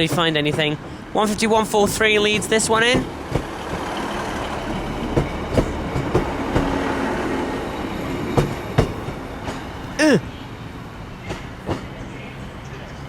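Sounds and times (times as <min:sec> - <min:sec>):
train rolling rumble: 0:00.1 - 0:09.2.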